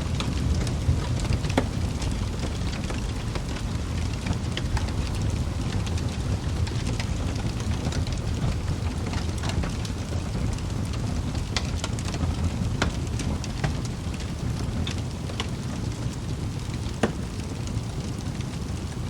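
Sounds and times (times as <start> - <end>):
logs crackling and popping: 0.0 - 19.0
low rumble of flames: 0.0 - 19.0.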